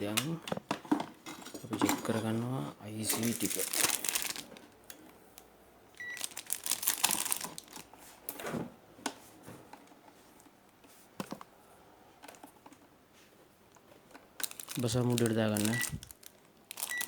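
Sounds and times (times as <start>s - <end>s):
rustling: 3.0s - 4.8s, 6.0s - 8.2s, 14.4s - 17.0s.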